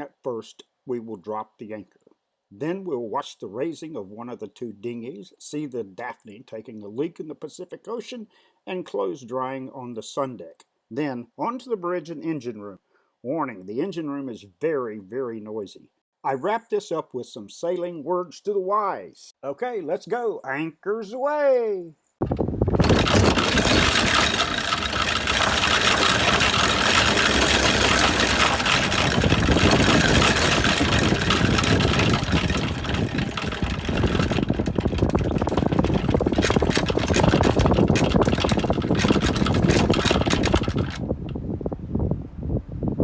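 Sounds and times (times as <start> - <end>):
anchor chain rattling: 22.2 - 41.1.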